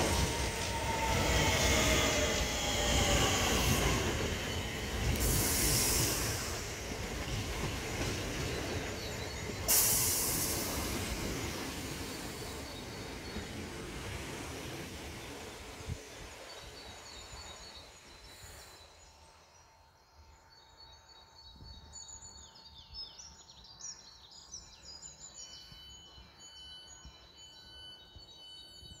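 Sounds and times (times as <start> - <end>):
electric train pulling away: 0.0 - 19.2
small birds singing: 0.0 - 29.0.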